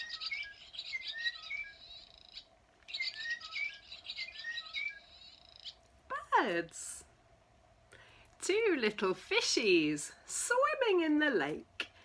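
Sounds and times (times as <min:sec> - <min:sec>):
small birds chirping: 0:00.0 - 0:05.9.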